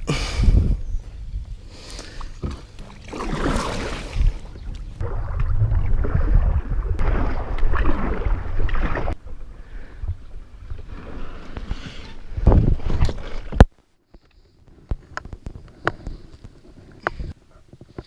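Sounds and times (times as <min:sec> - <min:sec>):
wind rumbling on microphone: 0:00.0 - 0:13.7, 0:14.6 - 0:18.0
water swells: 0:02.5 - 0:13.6.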